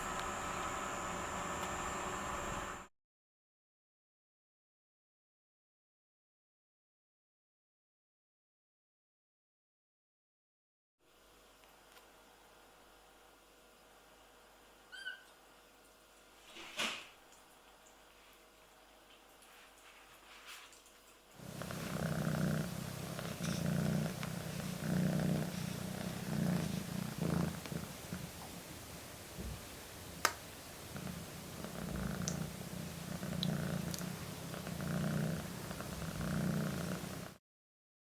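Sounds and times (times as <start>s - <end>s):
kitten purring: 21.4s - 29.7s, 30.8s - 37.4s.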